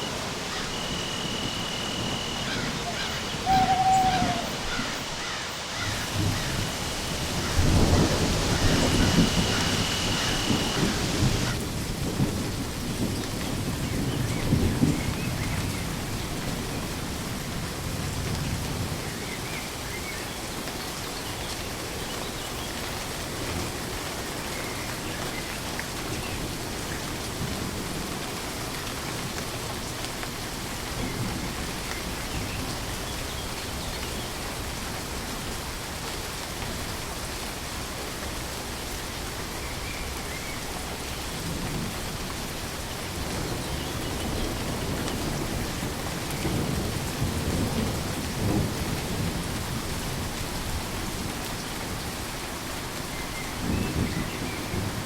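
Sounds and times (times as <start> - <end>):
low thunder rumble: 0.0 - 19.4, 39.7 - 52.0
steady rain falling: 0.0 - 55.0.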